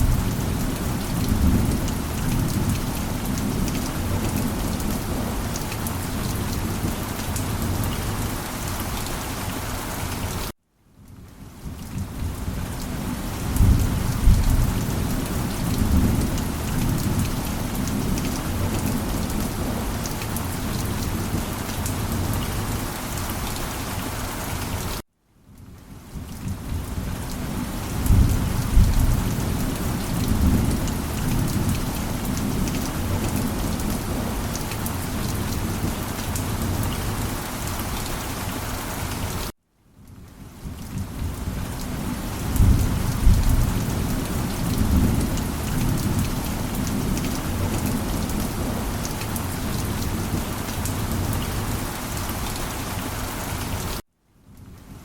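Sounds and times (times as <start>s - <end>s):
heavy rain: 0.0s - 55.0s
deep rolling thunder: 13.5s - 19.9s, 28.0s - 34.5s, 42.4s - 49.0s.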